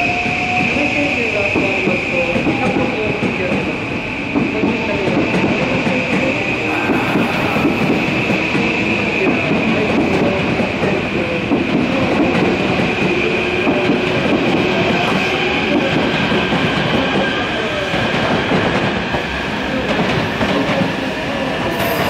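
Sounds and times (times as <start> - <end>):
electric train high whine: 6.0 - 11.1.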